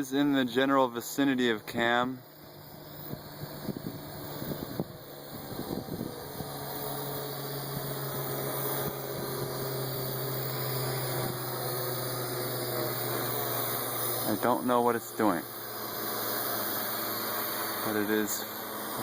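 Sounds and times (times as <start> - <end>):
quadcopter propellers humming: 0.0 - 19.0.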